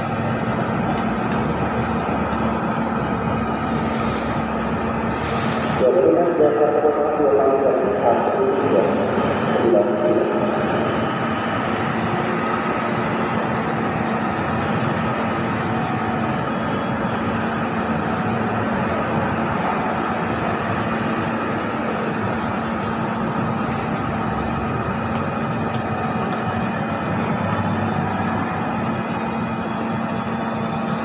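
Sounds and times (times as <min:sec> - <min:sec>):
constant low hum: 0:00.0 - 0:31.0
train wheels rumbling: 0:17.2 - 0:31.0.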